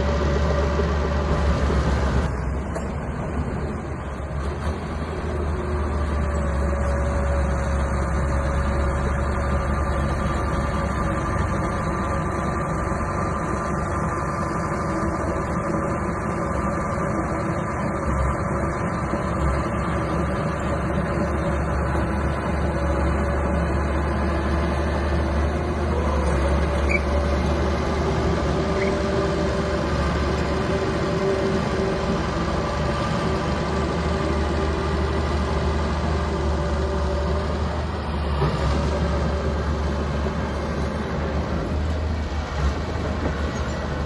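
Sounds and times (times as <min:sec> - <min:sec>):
bulldozer engine running: 0:00.0 - 0:44.0.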